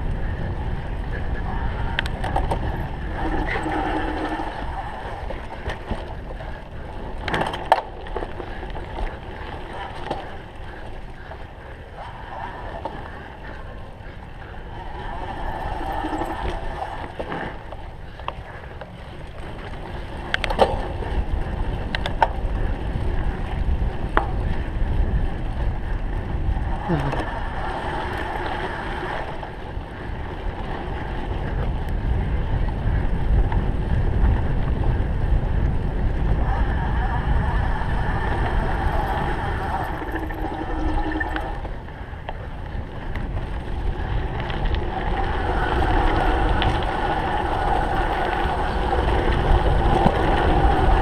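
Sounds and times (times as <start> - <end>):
tyres rumbling over rough ground: 0.0 - 51.0
wind rushing over microphone: 0.0 - 51.0
bike clicks and knocks: 5.2 - 11.5, 17.1 - 25.0.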